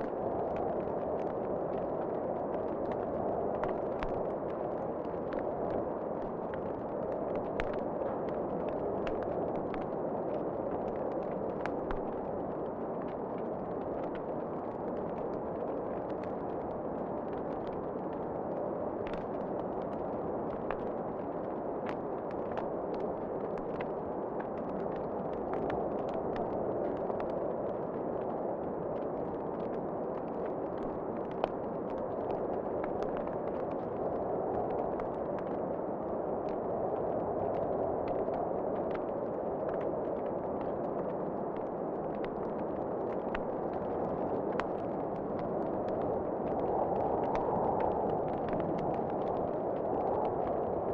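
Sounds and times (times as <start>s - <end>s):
wood fire crackling and popping: 19.0s - 50.9s
rushing wind: 41.3s - 50.9s.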